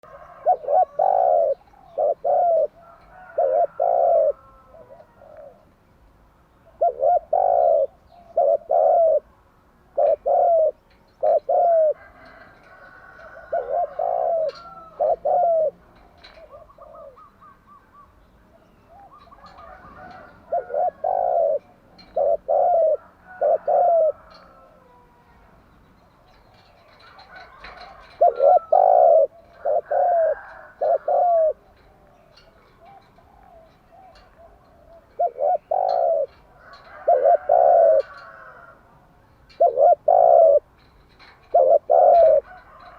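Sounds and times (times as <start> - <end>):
small birds chirping: 0.0 - 3.0, 24.1 - 38.2
dove cooing: 0.0 - 5.7, 6.6 - 9.3, 9.9 - 25.4, 26.3 - 42.9.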